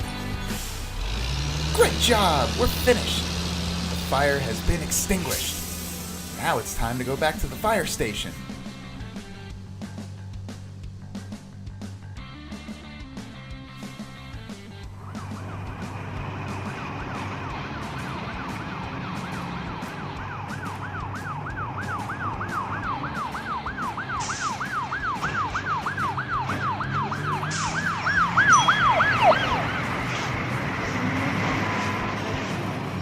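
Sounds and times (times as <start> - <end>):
low vehicle rumble: 0.0 - 33.0
fire truck siren yelping: 0.7 - 8.4, 14.9 - 33.0.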